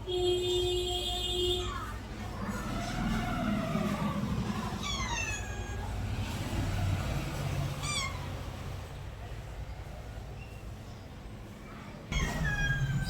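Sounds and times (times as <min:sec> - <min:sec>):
cat meowing: 0:04.8 - 0:06.0, 0:07.8 - 0:08.4, 0:12.1 - 0:13.0.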